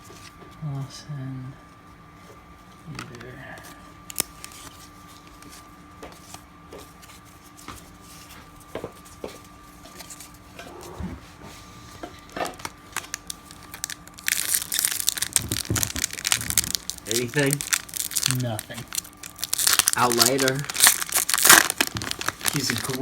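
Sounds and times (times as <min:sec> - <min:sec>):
wrapper tearing and crinkling: 0:04.0 - 0:04.8, 0:12.2 - 0:23.0.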